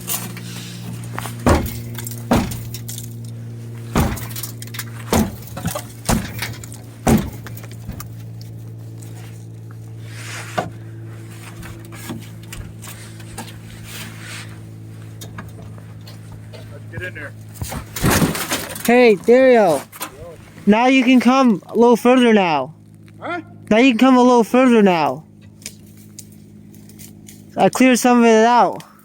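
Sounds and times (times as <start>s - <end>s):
steady low hum: 0.0s - 29.0s
sheet-metal clanks and bangs: 1.4s - 3.2s, 3.9s - 8.2s, 17.6s - 19.0s.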